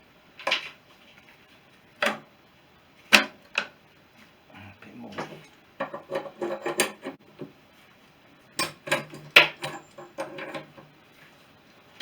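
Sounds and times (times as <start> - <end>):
metal tools clinking and knocking: 5.2 - 7.2, 8.6 - 10.9.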